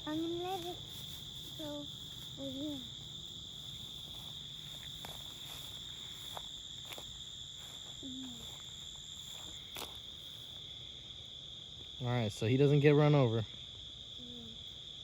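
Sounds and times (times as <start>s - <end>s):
light footsteps: 0.0s - 10.7s
higher insect band: 0.0s - 15.0s
insects trilling: 0.0s - 15.0s.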